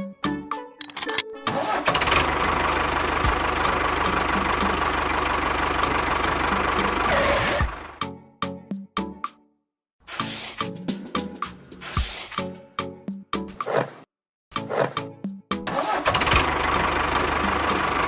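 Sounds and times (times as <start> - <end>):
engine starting and running: 0.9 - 8.0, 15.7 - 18.0.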